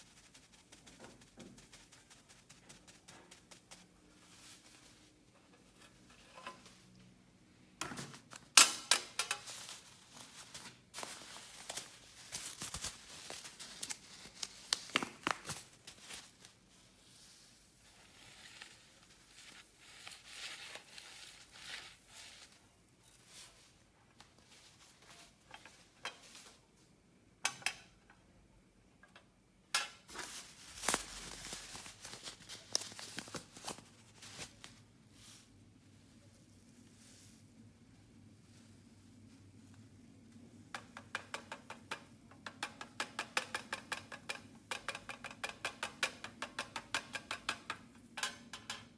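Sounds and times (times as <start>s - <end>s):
crinkly rustles: 0.0s - 7.1s, 9.1s - 26.9s, 30.0s - 37.6s
clicks and taps of containers: 40.8s - 48.9s.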